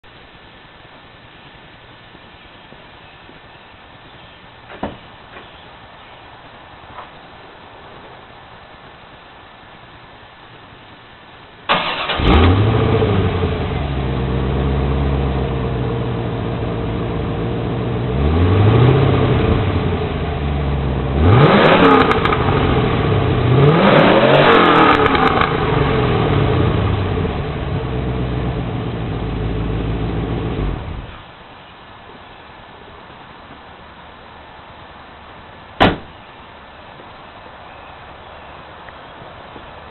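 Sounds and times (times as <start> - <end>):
car engine starting and revving: 11.7 - 31.2.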